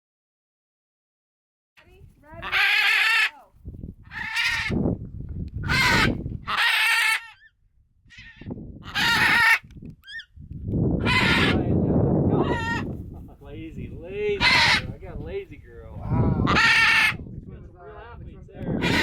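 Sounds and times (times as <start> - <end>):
macaws squawking: 2.3 - 3.5, 4.1 - 4.8, 5.6 - 7.5, 8.1 - 10.3, 11.0 - 11.6, 12.4 - 12.9, 14.4 - 15.0, 16.4 - 17.2, 18.8 - 19.0.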